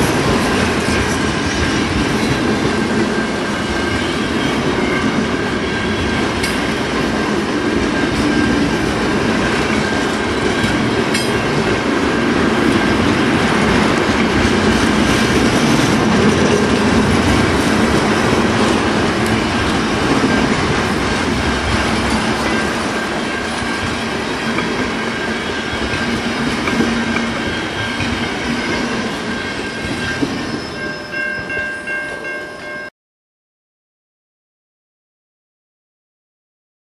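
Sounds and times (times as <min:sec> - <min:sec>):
freight train wheels rumbling: 0:00.0 - 0:32.9
high-pitched wheel squeal: 0:27.0 - 0:32.0.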